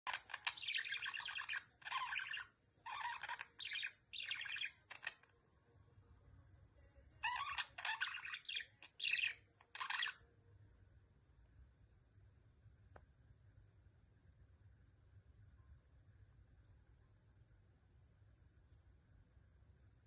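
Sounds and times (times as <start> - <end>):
budgerigar chattering and warbling: 0.1 - 5.2, 7.2 - 10.2.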